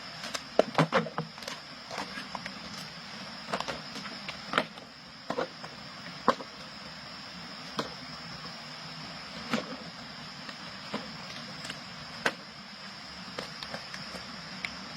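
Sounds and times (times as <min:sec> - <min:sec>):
insects chirring: 0:00.0 - 0:14.9.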